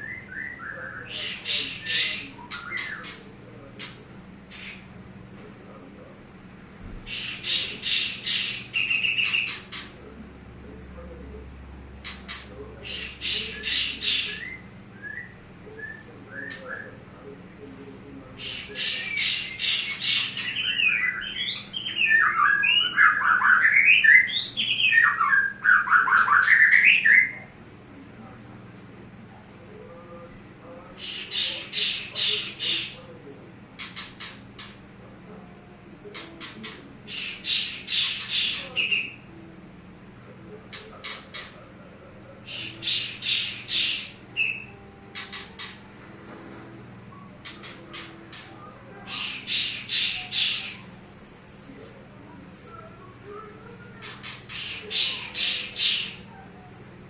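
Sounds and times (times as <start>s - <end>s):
bird squawking: 0.0s - 5.0s, 7.1s - 10.0s, 12.0s - 17.0s, 18.4s - 27.5s, 31.0s - 33.1s, 36.2s - 39.3s, 40.7s - 41.7s, 42.4s - 45.9s, 47.2s - 51.0s, 52.8s - 56.6s
low steady hum: 27.2s - 57.0s
songbird warbling: 42.5s - 45.9s, 47.1s - 51.0s.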